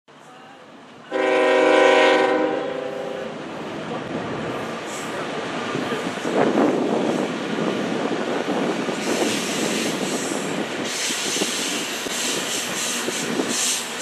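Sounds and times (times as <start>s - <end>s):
diesel locomotive engines running: 0.1s - 14.0s
wheels rumbling on rail: 0.1s - 14.0s
wheels squealing on rails: 8.6s - 14.0s.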